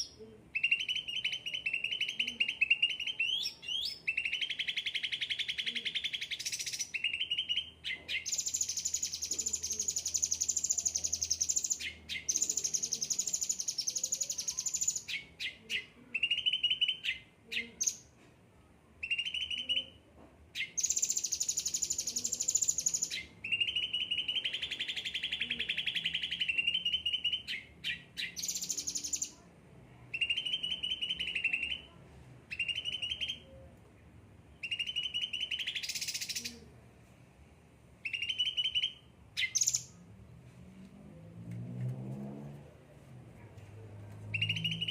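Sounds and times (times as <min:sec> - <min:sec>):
bird singing fast trills: 0:00.0 - 0:15.6, 0:20.6 - 0:29.4, 0:34.6 - 0:36.5, 0:38.0 - 0:40.0, 0:44.3 - 0:44.9.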